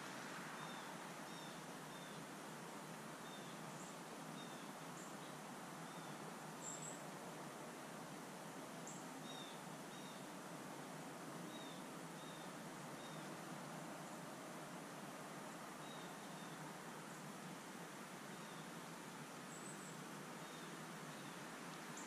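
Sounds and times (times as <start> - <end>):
outdoor background hiss: 0.0 - 22.0
faint bird chirps: 0.6 - 2.3, 3.2 - 7.0, 8.8 - 10.3, 11.5 - 13.4, 15.8 - 17.3, 19.5 - 22.0.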